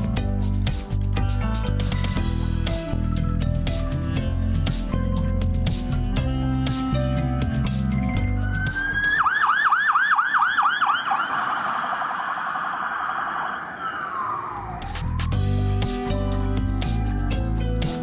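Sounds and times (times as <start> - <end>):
music: 0.0 - 9.2, 14.8 - 18.0
electronic siren wailing: 8.2 - 15.4, 16.4 - 17.6.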